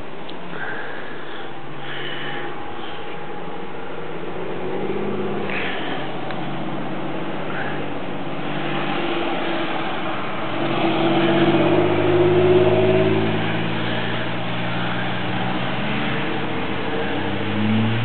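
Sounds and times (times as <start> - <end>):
car engine running: 1.8 - 18.0.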